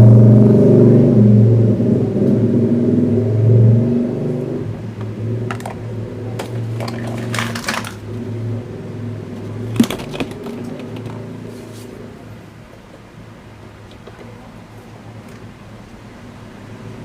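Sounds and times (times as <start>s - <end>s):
clicks and knocks: 6.4s - 8.0s.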